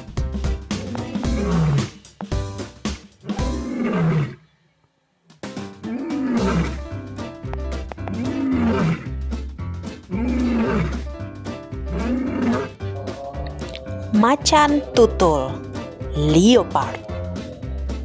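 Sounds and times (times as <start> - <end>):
background music with steady beat: 0.0 - 4.0, 5.2 - 18.0
lion roaring: 0.7 - 2.0, 3.2 - 4.4, 5.7 - 7.1, 7.8 - 14.2, 14.8 - 18.0.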